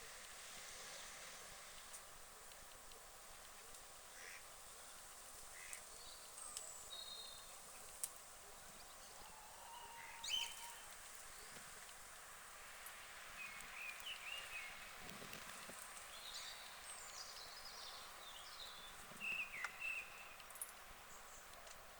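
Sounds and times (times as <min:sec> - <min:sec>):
faint bird calls: 0:04.1 - 0:04.5, 0:05.5 - 0:07.6, 0:08.7 - 0:11.7.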